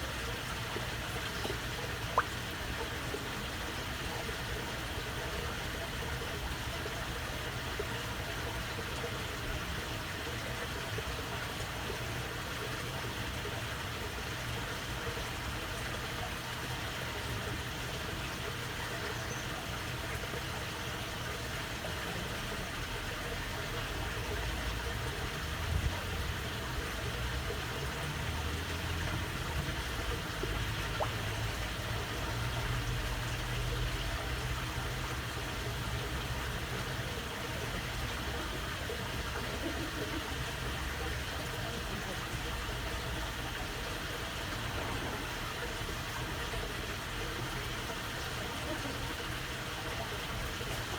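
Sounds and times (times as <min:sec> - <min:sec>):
water babbling: 0:00.0 - 0:50.9
low rumble: 0:44.2 - 0:47.1.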